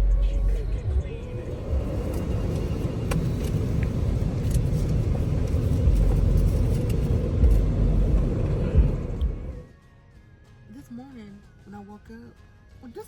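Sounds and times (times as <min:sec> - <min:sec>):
car engine and tyre rumble: 0:00.0 - 0:09.8.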